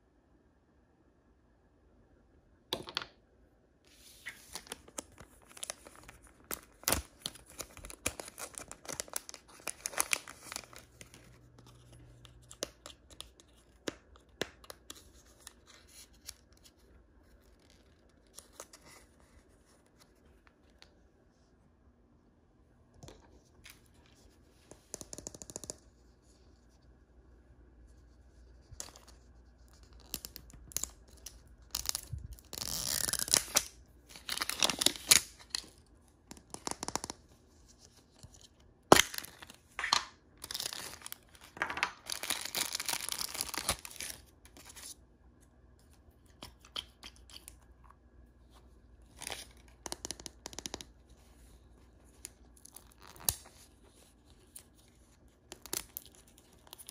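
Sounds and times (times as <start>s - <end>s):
packaging being torn and crinkled: 4.5s - 16.7s, 30.0s - 37.2s, 38.2s - 44.9s.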